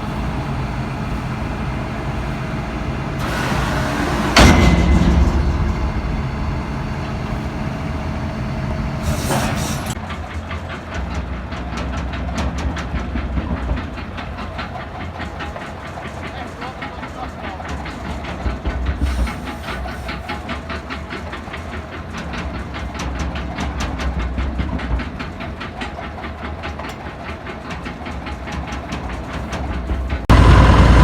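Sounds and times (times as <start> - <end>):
hiss: 0.0 - 4.6, 9.0 - 10.0, 19.0 - 20.4
heavy clunk: 0.0 - 10.0
tractor and baler running: 0.0 - 31.0.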